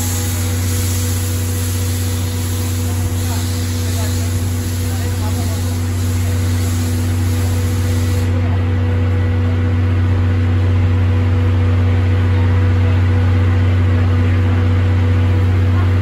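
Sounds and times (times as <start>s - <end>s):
high hiss: 0.0s - 8.4s
train low mechanical hum: 0.0s - 16.0s.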